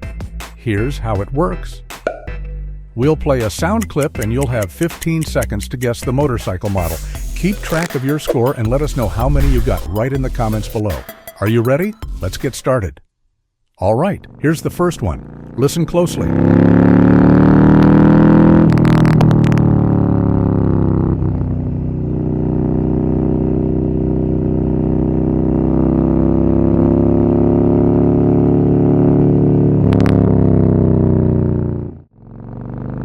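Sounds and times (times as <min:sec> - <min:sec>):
motorcycle engine running: 0:14.5 - 0:33.0.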